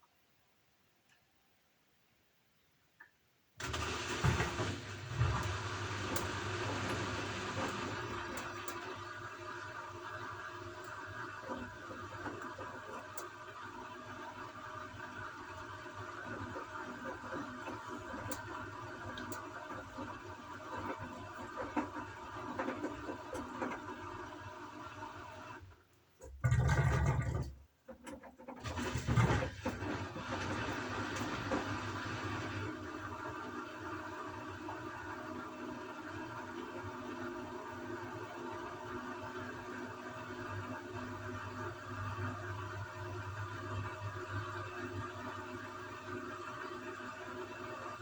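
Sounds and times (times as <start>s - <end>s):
washing machine rushing with hum: 3.6s - 48.0s
washing machine drum rumbling: 3.7s - 9.0s, 26.3s - 33.2s.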